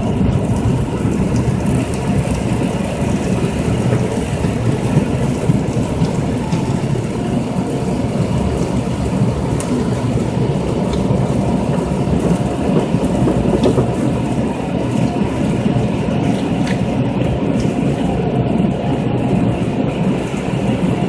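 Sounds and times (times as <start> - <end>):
water spraying on car body: 0.0 - 21.0.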